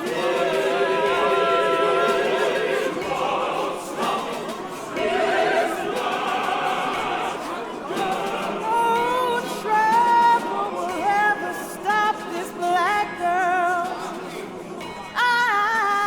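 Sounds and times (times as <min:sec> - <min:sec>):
solo voice singing with vibrato: 0:08.0 - 0:14.2.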